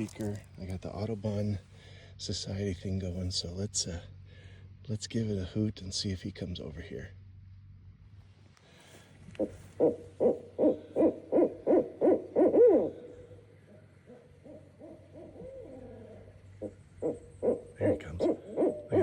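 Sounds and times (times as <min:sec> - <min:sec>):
faint wavering calls: 0:09.3 - 0:19.0
owl hoots through speaker: 0:09.4 - 0:19.0.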